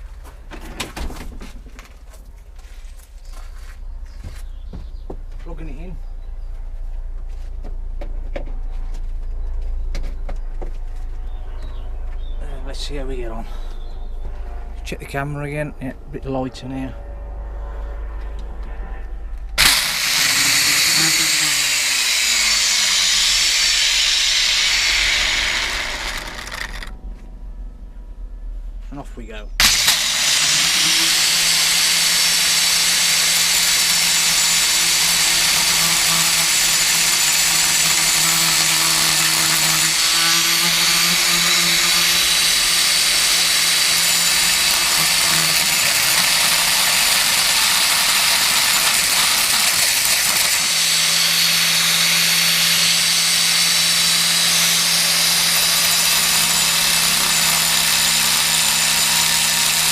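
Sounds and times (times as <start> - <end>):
angle grinder cutting metal: 19.6 - 27.0, 29.6 - 59.9.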